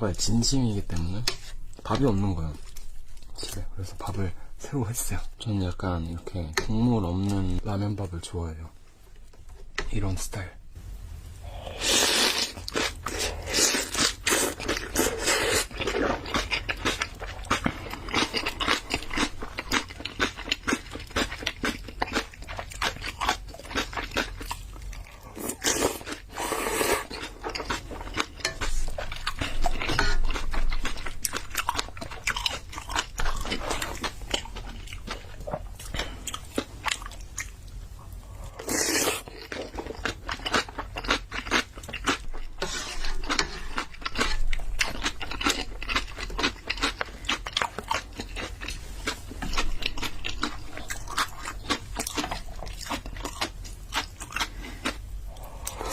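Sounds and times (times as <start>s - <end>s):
wet chewing and biting: 38.7s - 55.9s.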